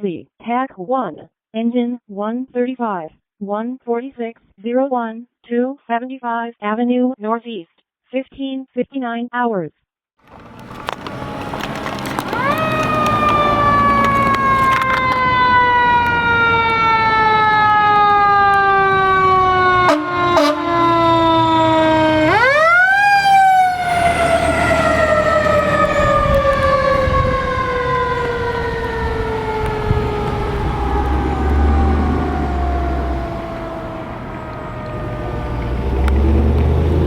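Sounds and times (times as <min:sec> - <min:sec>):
fire engine siren: 0:10.3 - 0:37.0
low engine rumble: 0:10.3 - 0:37.0.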